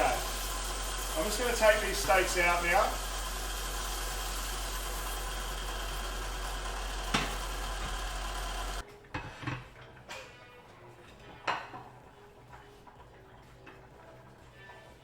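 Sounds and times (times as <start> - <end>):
range hood fan running: 0.0 - 15.0.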